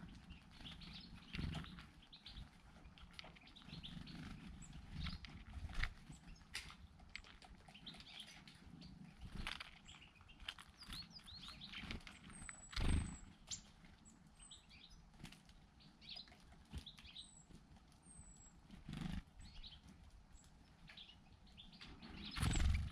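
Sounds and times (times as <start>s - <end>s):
songbirds chirping: 0.0s - 22.9s.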